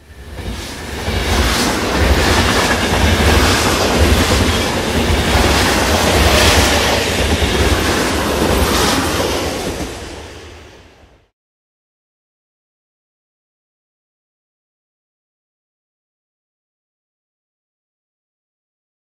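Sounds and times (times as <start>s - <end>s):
train wheels clattering on rails: 0.1s - 10.6s.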